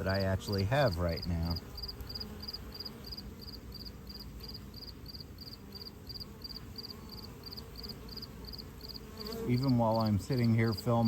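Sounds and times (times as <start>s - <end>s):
low buzz of honeybees: 0.0s - 11.0s
cricket chirping: 1.2s - 9.4s.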